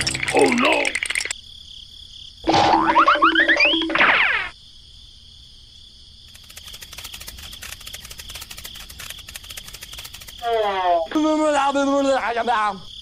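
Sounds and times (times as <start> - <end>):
cricket-like chirping trill: 0.0 - 13.0
cartoon sound effect sliding down: 2.5 - 4.5
fast run of clicks: 6.3 - 10.6.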